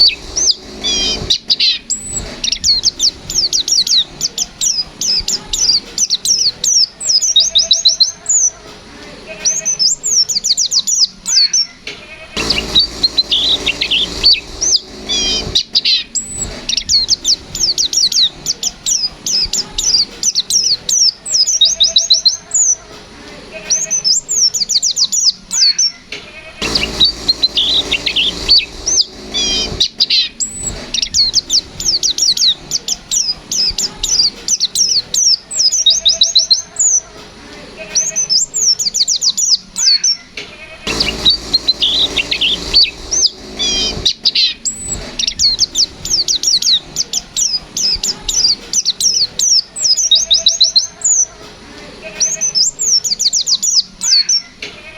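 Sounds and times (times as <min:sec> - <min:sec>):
bird singing fast chirps and trills: 0:00.0 - 0:08.6, 0:12.4 - 0:22.8, 0:26.6 - 0:37.1, 0:40.9 - 0:51.4
hiss: 0:00.0 - 0:10.6, 0:12.1 - 0:24.8, 0:26.6 - 0:39.1, 0:40.8 - 0:53.2.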